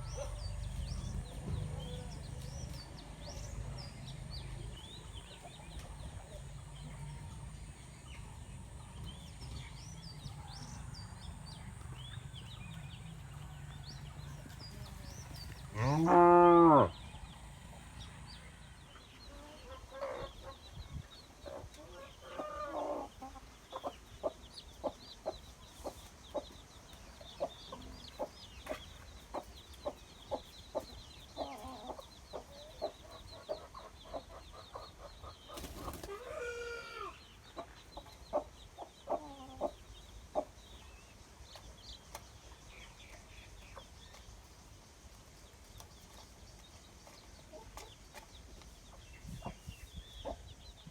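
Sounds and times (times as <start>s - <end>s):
chickens clucking: 0.0s - 50.9s
cow mooing: 15.7s - 17.0s.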